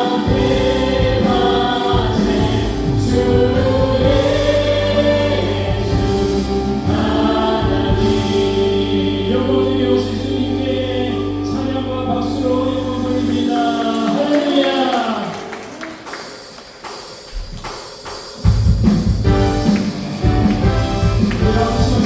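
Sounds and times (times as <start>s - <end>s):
voices singing held notes: 0.0s - 15.6s, 20.2s - 22.0s
keyboards: 0.0s - 16.9s, 18.9s - 22.0s
low bass: 0.3s - 13.6s.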